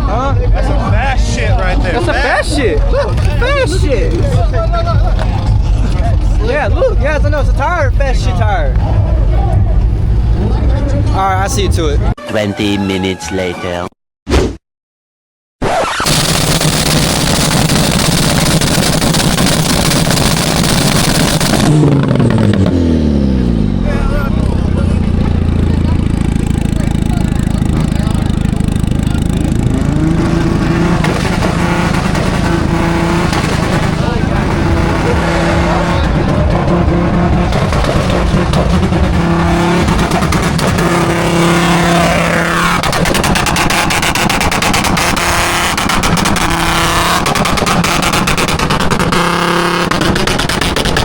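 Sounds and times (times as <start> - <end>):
rapid exhaust crackling: 0.0 - 12.1, 15.8 - 51.0
car engine at high revs: 15.8 - 51.0.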